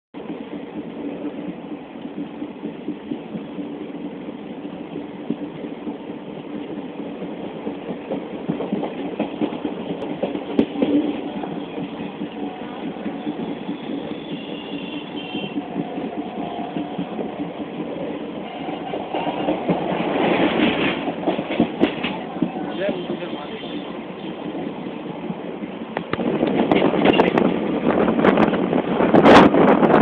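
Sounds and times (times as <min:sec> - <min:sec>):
train wheels rumbling on rail: 0:00.2 - 0:30.0
clanks over rail joints: 0:18.8 - 0:23.2.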